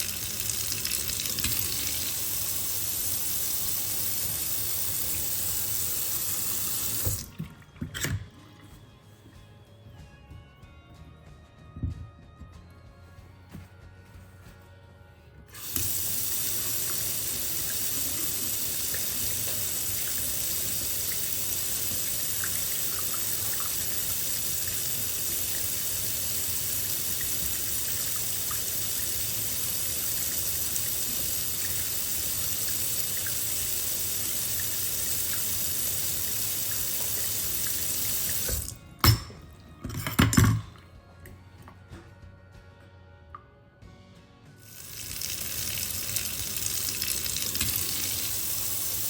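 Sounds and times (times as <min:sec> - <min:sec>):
tap water running into sink: 0:00.0 - 0:08.3, 0:15.5 - 0:39.3, 0:44.7 - 0:49.0.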